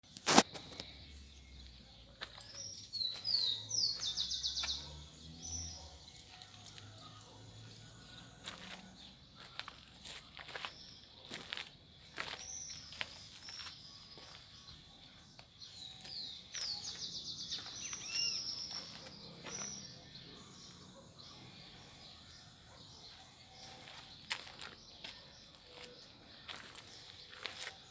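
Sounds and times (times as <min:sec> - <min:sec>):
bird singing: 0:00.0 - 0:27.9
fast bird trill: 0:15.8 - 0:20.0.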